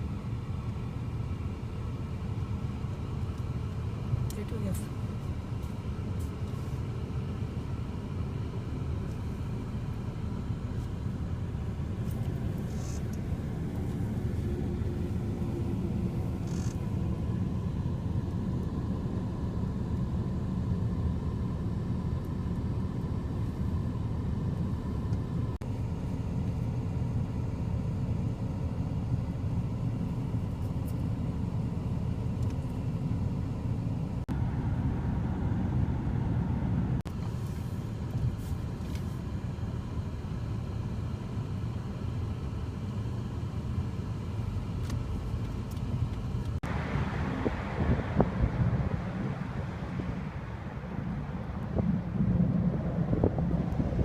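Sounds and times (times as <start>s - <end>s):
road vehicle rumbling: 0.0s - 54.0s.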